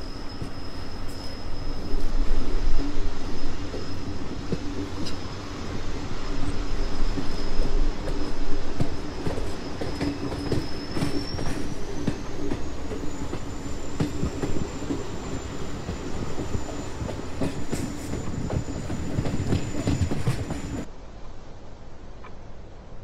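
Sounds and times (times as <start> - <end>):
high wheel squeal: 0.0 - 20.9
train rumbling on rails: 0.0 - 21.9.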